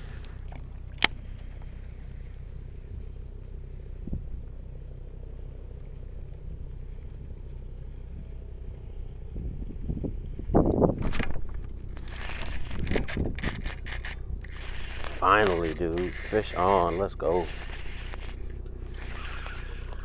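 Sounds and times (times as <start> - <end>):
wind rumble on microphone: 0.0 - 20.0
sharp click: 9.7 - 20.0.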